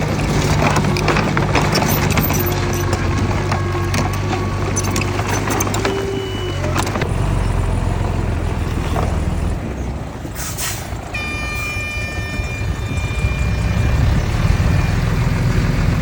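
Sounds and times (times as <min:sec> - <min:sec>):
metal clanks: 0:00.0 - 0:07.0
heavy machinery running: 0:00.0 - 0:16.0
high-pitched whine: 0:11.2 - 0:15.5.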